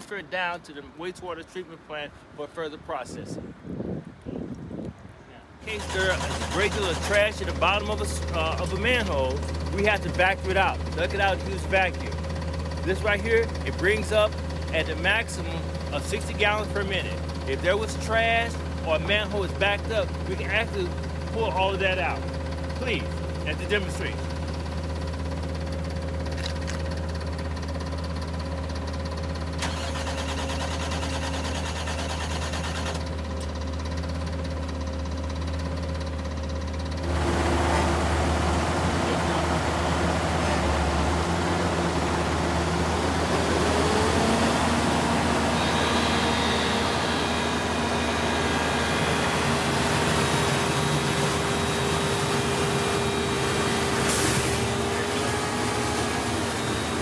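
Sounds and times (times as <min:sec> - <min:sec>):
truck engine running: 0:05.6 - 0:57.0
machine whine: 0:37.0 - 0:57.0.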